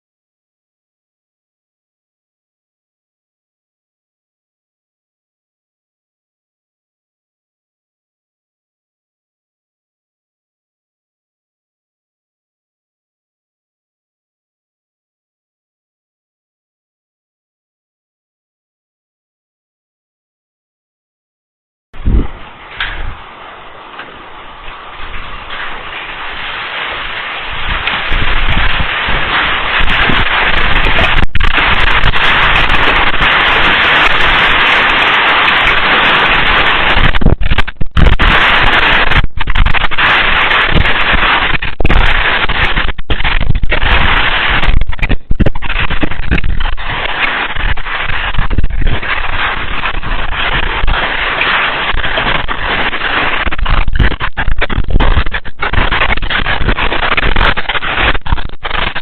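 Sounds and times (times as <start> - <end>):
heavy rain pelting down: 22.0 - 59.0.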